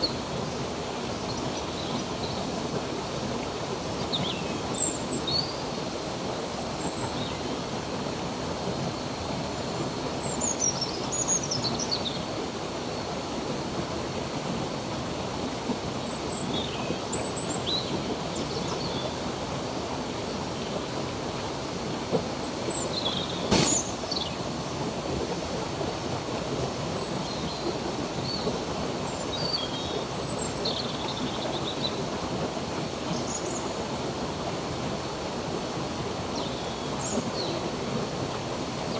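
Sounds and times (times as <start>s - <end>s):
flowing stream rushing: 19.2s - 38.9s
sharp click: 23.5s - 24.0s.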